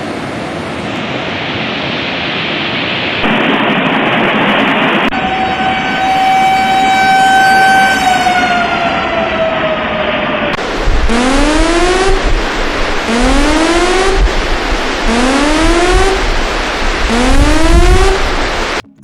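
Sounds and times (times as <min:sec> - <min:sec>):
siren winding down: 0:05.1 - 0:18.8.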